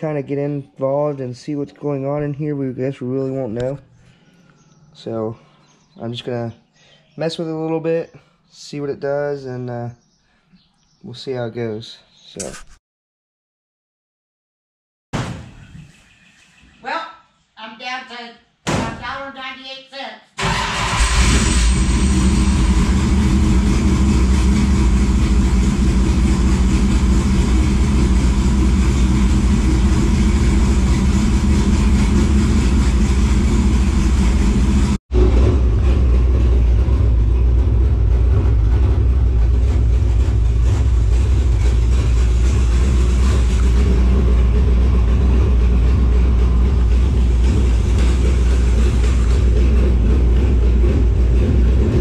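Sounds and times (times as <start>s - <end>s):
race car engine idling: 21.5s - 52.0s.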